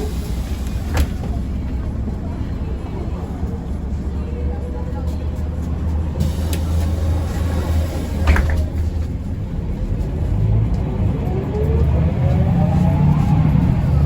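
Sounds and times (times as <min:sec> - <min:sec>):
bus engine and road rumble: 0:00.0 - 0:14.0
rising engine whine: 0:09.6 - 0:14.0.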